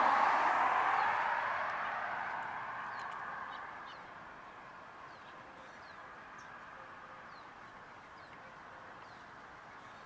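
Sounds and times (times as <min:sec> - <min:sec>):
small birds chirping: 0:02.8 - 0:10.0.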